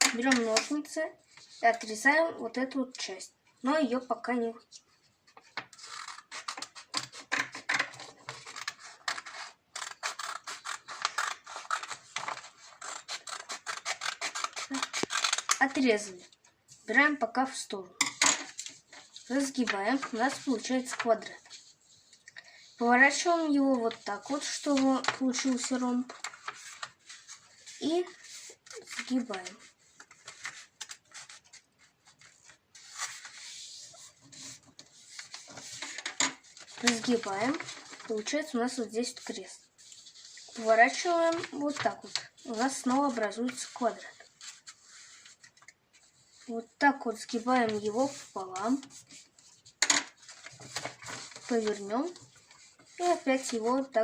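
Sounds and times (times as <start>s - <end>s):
scissors cutting paper: 5.5s - 16.1s, 23.2s - 38.4s, 39.2s - 45.7s, 49.9s - 53.9s
paper rubbing swish: 32.3s - 35.9s.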